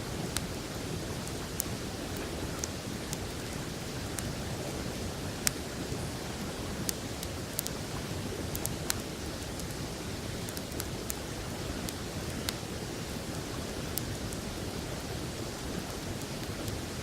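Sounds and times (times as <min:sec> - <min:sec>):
campfire crackling and popping: 0:01.2 - 0:04.4, 0:06.8 - 0:14.4.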